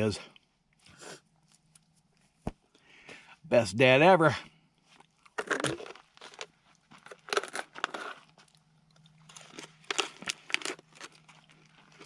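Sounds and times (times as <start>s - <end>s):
crunching bacon chewing: 4.9s - 12.0s.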